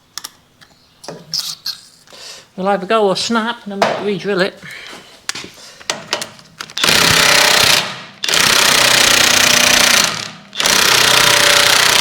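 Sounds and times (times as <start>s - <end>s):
impact wrench hammering: 3.8s - 4.1s.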